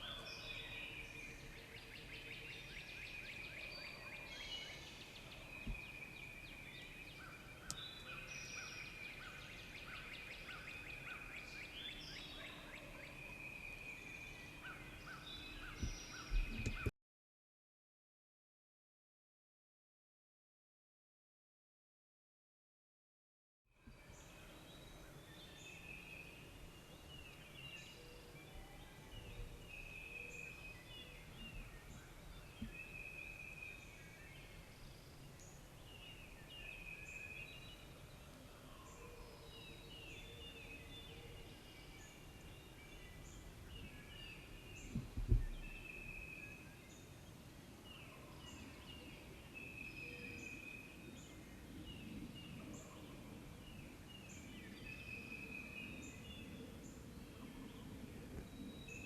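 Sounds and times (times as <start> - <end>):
faint woodland background noise: 0.0 - 16.9, 23.7 - 59.0
songbirds singing: 0.0 - 16.9, 23.8 - 59.0
low thump: 44.9 - 45.7.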